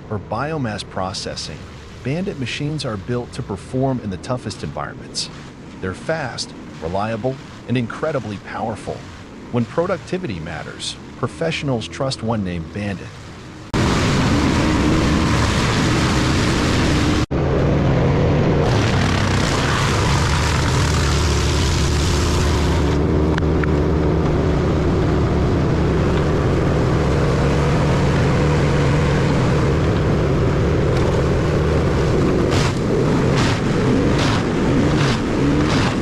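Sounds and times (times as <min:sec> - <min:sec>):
wood chipper engine: 0:18.6 - 0:25.1, 0:25.8 - 0:36.0.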